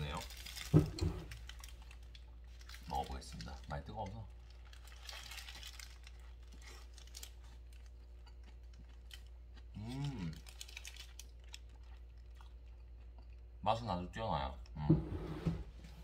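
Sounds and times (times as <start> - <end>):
person chewing: 4.4 - 13.6
person humming: 9.8 - 10.4.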